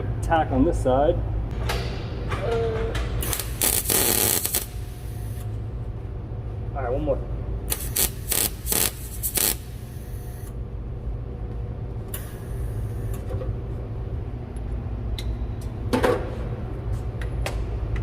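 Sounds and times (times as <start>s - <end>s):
steady low hum: 0.0s - 18.0s
welding noise: 3.2s - 5.6s, 7.7s - 10.6s, 12.1s - 13.3s.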